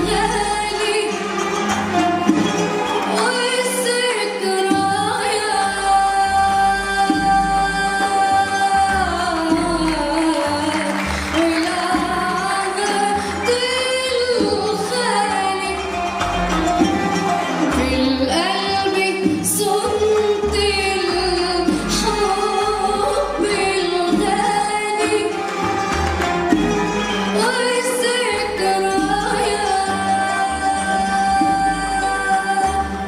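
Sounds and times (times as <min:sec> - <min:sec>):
instrumental accompaniment: 0:00.0 - 0:33.0.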